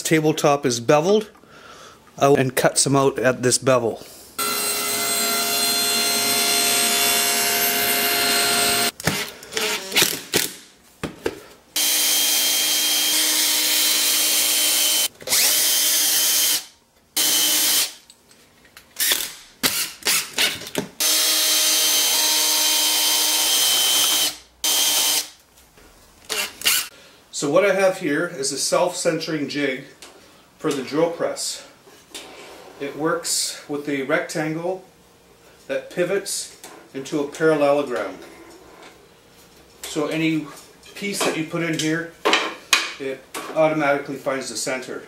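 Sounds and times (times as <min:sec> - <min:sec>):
power tool cutting wood: 0:04.4 - 0:10.2, 0:11.8 - 0:18.0, 0:21.0 - 0:25.3, 0:26.3 - 0:26.9.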